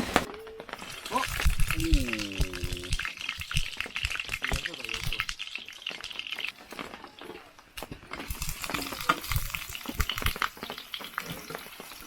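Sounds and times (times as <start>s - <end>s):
food frying in a pan: 0.0s - 12.0s
utensil clicks stirring: 0.8s - 6.6s.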